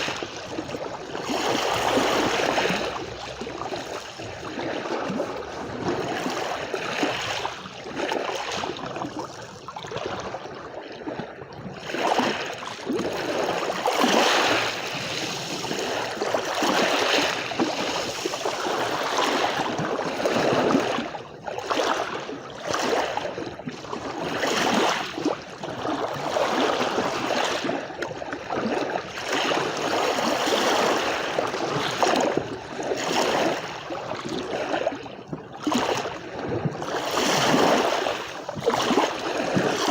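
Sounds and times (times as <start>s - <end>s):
sea waves washing onto beach: 0.0s - 10.0s, 11.9s - 21.1s, 35.6s - 39.9s.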